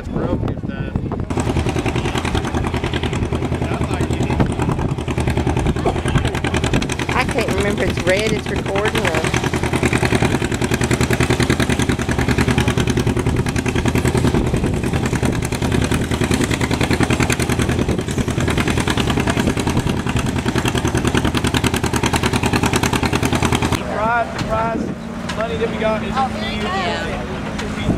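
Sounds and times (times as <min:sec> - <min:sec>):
engine idling loudly: 0:00.2 - 0:27.9.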